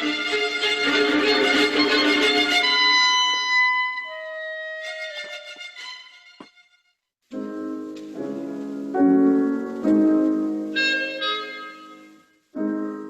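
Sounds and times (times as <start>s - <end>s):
classical piano chords: 7.3s - 13.0s.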